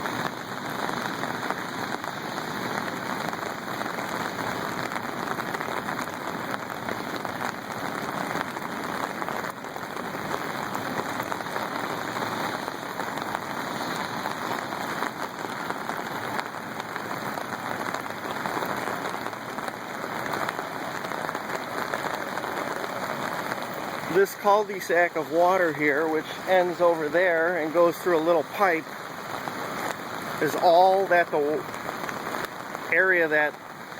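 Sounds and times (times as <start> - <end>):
floodwater rushing: 0.0 - 33.9.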